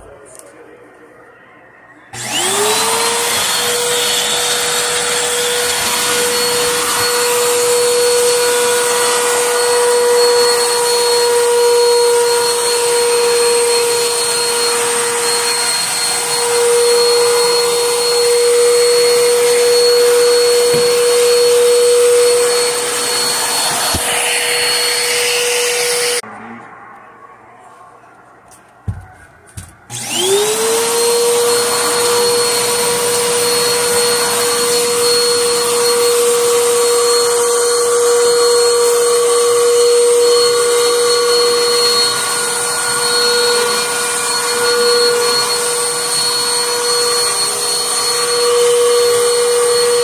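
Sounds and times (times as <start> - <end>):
vacuum cleaner motor whining: 1.2 - 26.3, 28.9 - 50.0.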